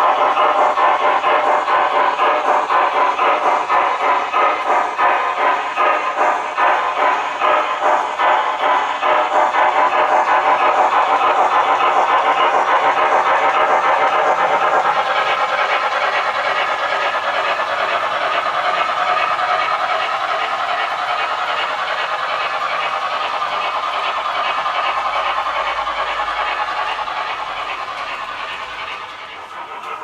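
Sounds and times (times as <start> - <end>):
steam chuffing from small speaker: 0.0 - 30.0.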